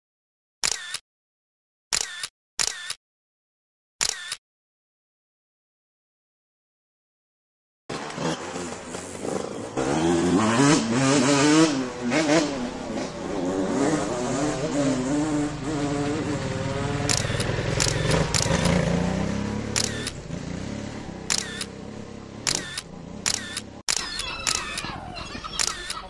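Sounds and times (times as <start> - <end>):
camera shutter clicks: 0.6 - 1.0, 1.9 - 3.0, 4.0 - 4.4, 17.1 - 18.8, 19.8 - 20.2, 21.3 - 21.7, 22.5 - 24.9, 25.6 - 26.0
motorcycle engine running: 11.8 - 23.8.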